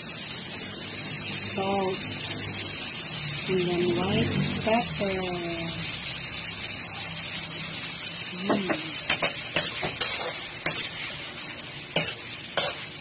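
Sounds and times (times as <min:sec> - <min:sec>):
shrimp sizzling in a wok: 0:00.0 - 0:13.0
metal spatula scraping a wok: 0:08.9 - 0:11.2, 0:11.9 - 0:13.0.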